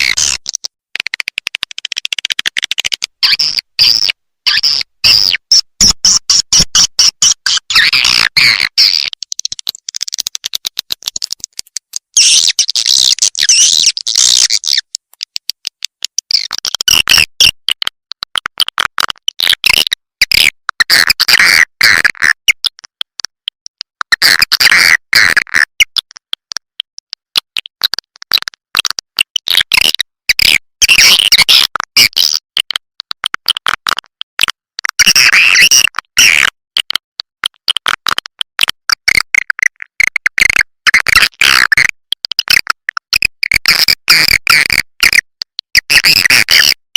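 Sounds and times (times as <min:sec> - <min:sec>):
rapid dry clicks: 0:00.0 - 0:03.2, 0:09.0 - 0:16.8
high twittering bird chirps: 0:12.2 - 0:14.8.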